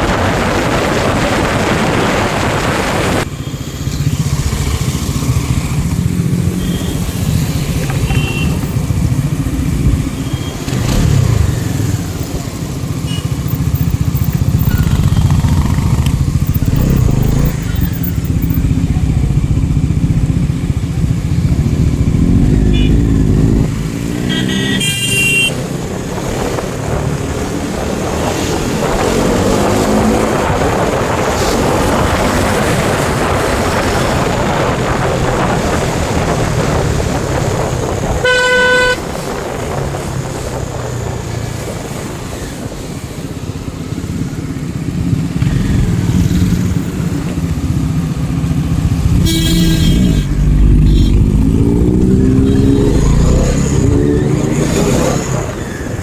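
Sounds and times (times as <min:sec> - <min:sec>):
motorcycle engines accelerating: 0:00.0 - 0:56.0
high horn toots: 0:07.8 - 0:08.7, 0:22.4 - 0:23.5, 0:24.2 - 0:25.6, 0:38.2 - 0:39.1, 0:49.0 - 0:53.6
horn: 0:38.2 - 0:39.1, 0:49.1 - 0:52.9.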